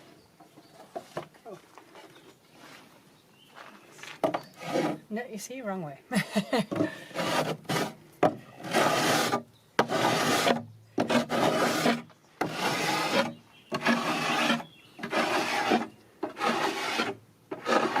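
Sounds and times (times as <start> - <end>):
hand plane shaving wood: 7.1 - 8.0, 8.6 - 18.0.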